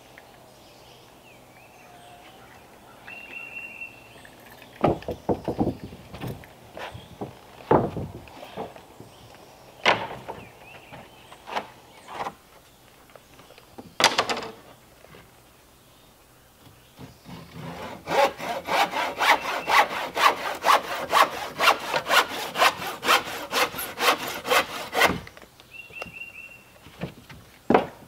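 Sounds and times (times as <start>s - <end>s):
wooden boards knocking and clattering: 4.8s - 6.4s, 7.1s - 9.1s, 9.8s - 12.4s, 13.8s - 14.7s, 26.9s - 28.0s.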